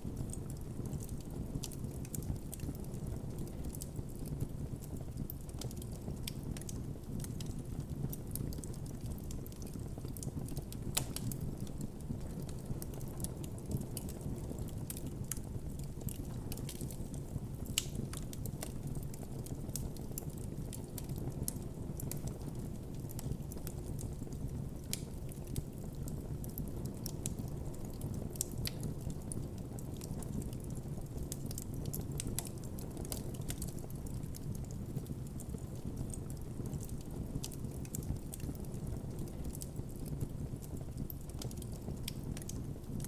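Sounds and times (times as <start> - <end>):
campfire crackling and popping: 0.0 - 43.0.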